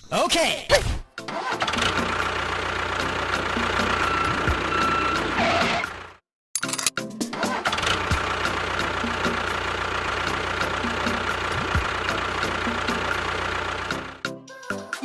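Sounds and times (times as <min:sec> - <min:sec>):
engine idling: 0:01.3 - 0:06.2, 0:07.3 - 0:14.2.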